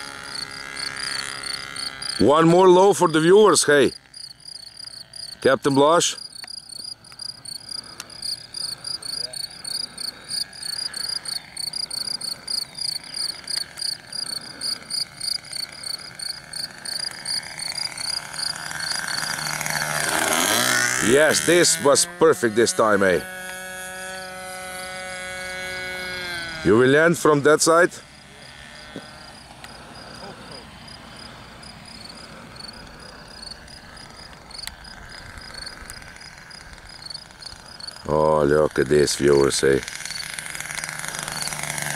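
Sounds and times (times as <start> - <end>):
distant model plane engine drone: 0.0 - 41.9
cricket chirping: 0.2 - 2.2, 2.8 - 19.6, 28.1 - 38.2.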